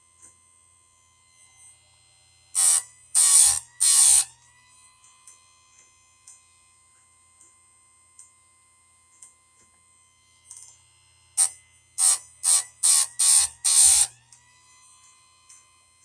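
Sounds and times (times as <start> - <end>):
sharpener motor whining: 2.5 - 4.8, 11.4 - 15.8
grinding wheel grinding chain: 2.6 - 4.3, 11.4 - 14.1.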